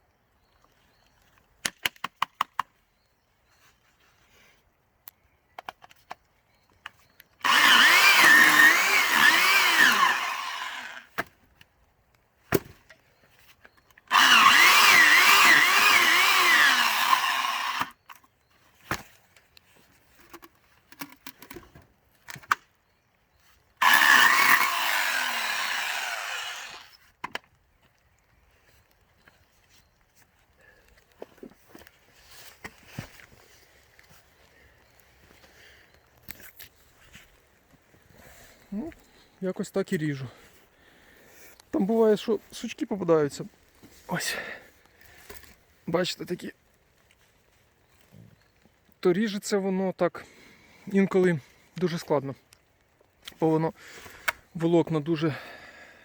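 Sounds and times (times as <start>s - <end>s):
electric saw cutting logs: 7.4s - 11.1s, 14.1s - 18.1s, 23.8s - 27.0s.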